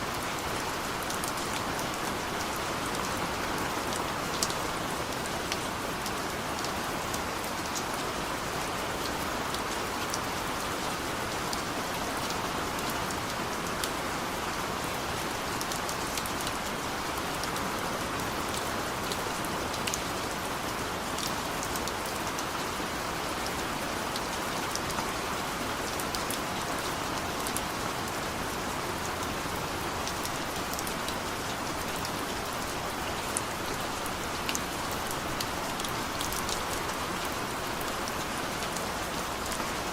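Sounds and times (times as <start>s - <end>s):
rain drops ticking: 0.0s - 39.9s
steady rain hiss: 0.0s - 39.9s.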